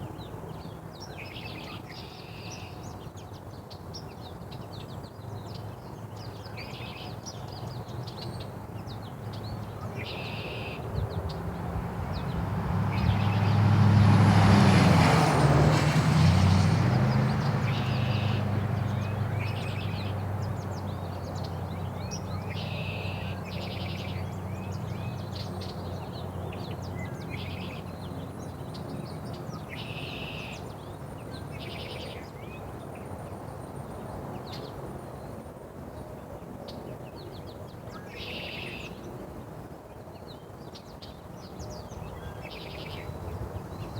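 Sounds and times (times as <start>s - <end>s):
vehicle passing on road: 10.9s - 31.2s.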